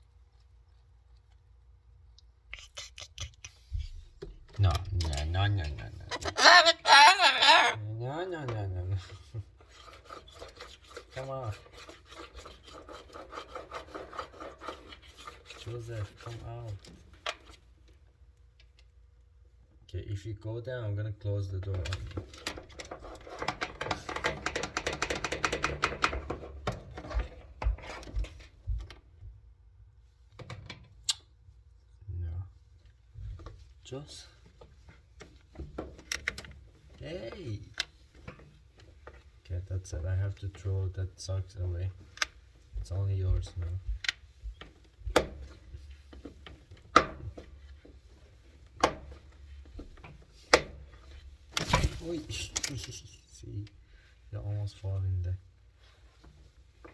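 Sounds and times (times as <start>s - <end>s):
bird clicking and tapping in drum: 23.5s - 26.3s.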